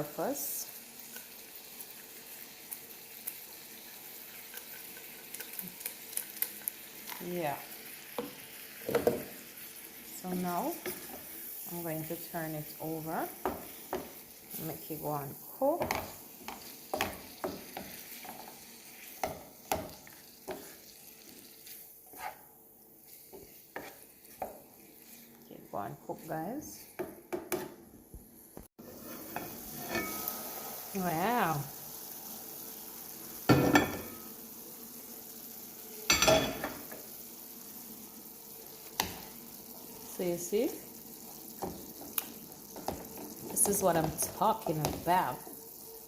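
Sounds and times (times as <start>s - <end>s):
chicken sizzling in a pan: 0.0s - 46.0s
spoon scraping a pan: 3.3s - 6.7s, 10.7s - 11.6s, 12.2s - 15.1s, 15.7s - 27.8s, 28.8s - 30.8s, 36.0s - 37.1s.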